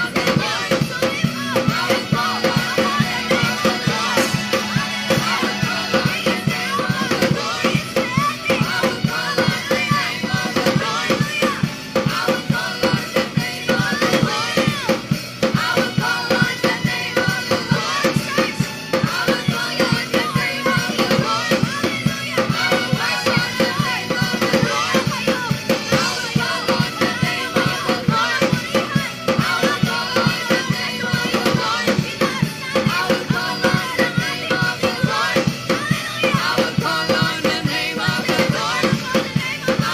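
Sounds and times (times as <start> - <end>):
drum kit steady beat: 0.0 - 39.9
voices singing worship song: 0.0 - 39.9.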